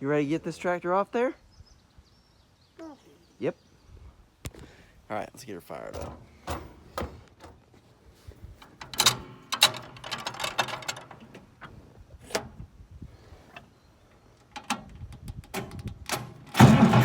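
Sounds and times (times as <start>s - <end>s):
mechanical clanking and rattling: 8.6s - 11.7s, 14.6s - 17.0s.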